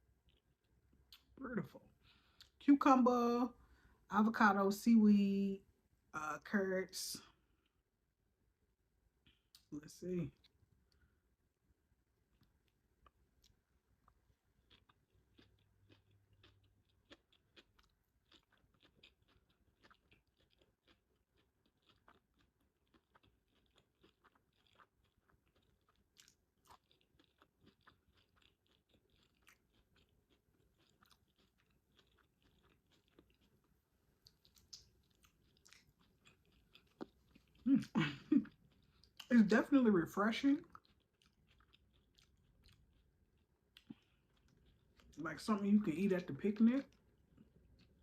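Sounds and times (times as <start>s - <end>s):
chewing food: 0.0s - 2.8s, 12.0s - 45.2s, 46.3s - 48.0s.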